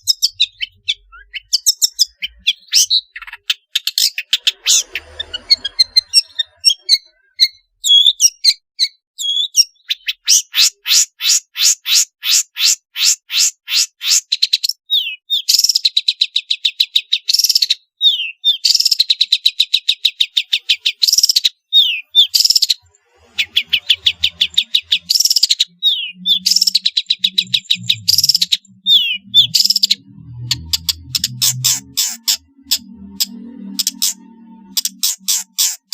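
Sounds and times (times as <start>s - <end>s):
shrike singing chattering notes: 23.4s - 35.9s
faint low hum: 26.4s - 35.1s.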